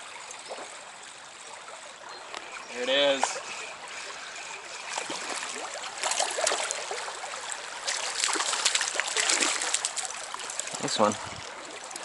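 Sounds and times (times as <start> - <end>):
stream water running and splashing: 0.0 - 12.0.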